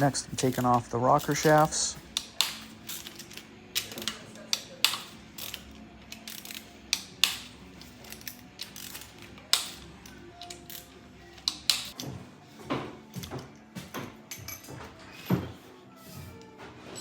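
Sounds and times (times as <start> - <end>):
hand tools clicking on metal: 0.0 - 12.0.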